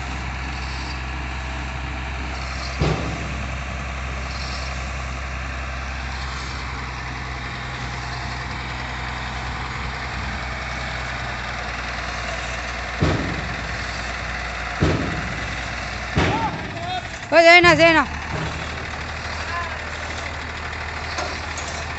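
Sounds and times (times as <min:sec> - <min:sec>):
truck engine idling: 0:00.0 - 0:21.9
sharp knocks: 0:02.8 - 0:03.6, 0:13.0 - 0:17.0.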